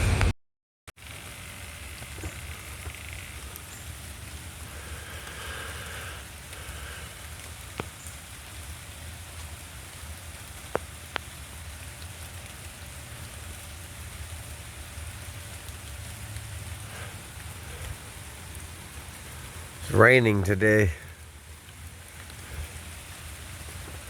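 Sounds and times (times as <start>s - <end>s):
steady rain falling: 1.0s - 24.0s.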